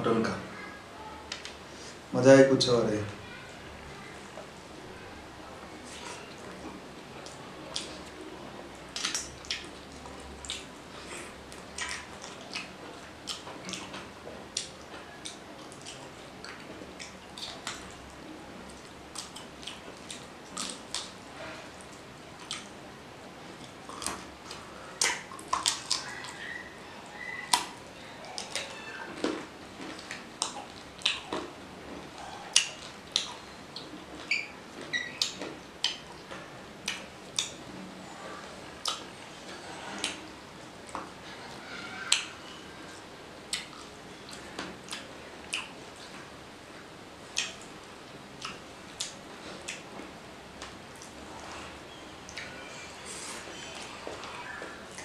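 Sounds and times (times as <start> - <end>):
wet chewing and lip-smacking: 8.9 - 18.1, 18.7 - 21.2, 21.8 - 22.8, 23.6 - 31.5, 32.2 - 37.6, 38.7 - 40.3, 43.0 - 46.1, 47.3 - 49.9.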